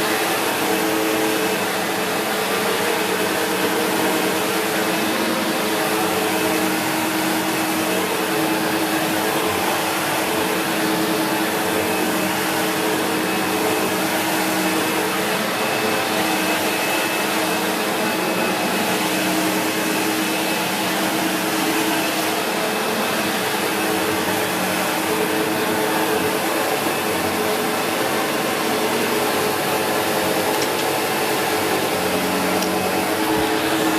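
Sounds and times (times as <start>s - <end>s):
upright vacuum cleaner running: 0.0s - 33.9s.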